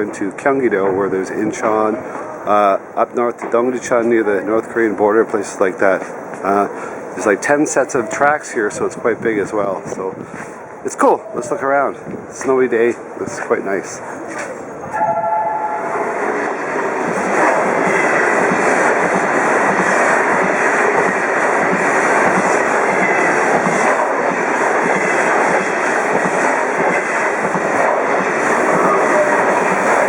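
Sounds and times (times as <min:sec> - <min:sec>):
train wheels rushing on rails: 0:00.0 - 0:30.0
train horn tone: 0:14.9 - 0:16.4.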